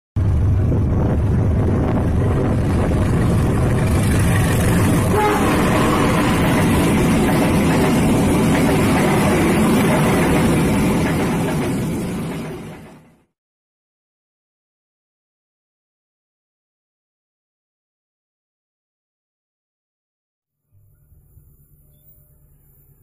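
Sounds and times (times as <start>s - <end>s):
train passing with steady rumble: 0.2s - 13.3s, 20.9s - 23.0s
train wheels on rails: 0.2s - 13.3s.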